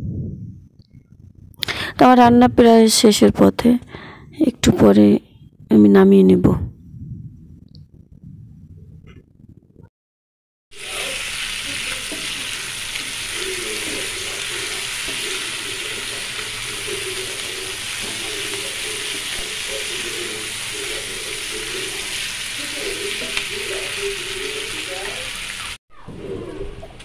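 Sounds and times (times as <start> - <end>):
curry sizzling in a frying pan: 10.8 - 25.8.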